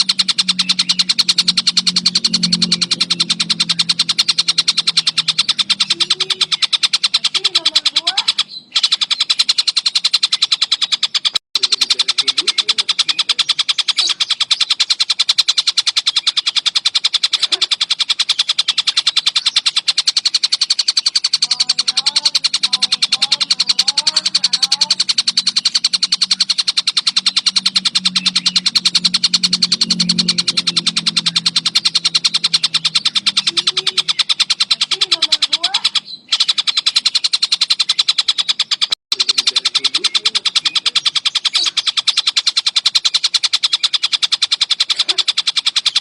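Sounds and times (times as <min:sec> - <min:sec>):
low hum: 0:00.0 - 0:09.8, 0:11.6 - 0:38.2
kingfisher calling: 0:00.0 - 0:46.0.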